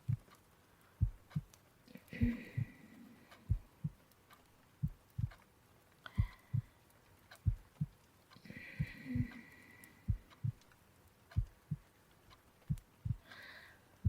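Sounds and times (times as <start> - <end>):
slow heartbeat: 0.0 - 0.4, 1.0 - 4.1, 4.8 - 5.4, 6.1 - 8.0, 8.7 - 10.7, 11.3 - 11.9, 12.6 - 13.4.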